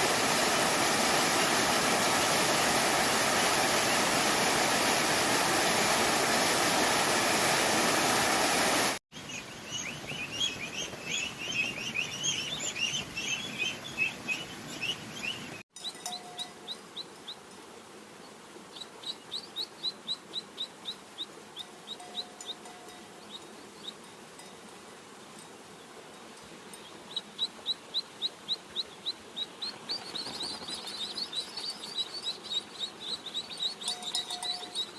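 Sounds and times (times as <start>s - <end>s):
small birds chirping: 9.1s - 17.5s, 18.2s - 24.5s, 25.7s - 34.9s.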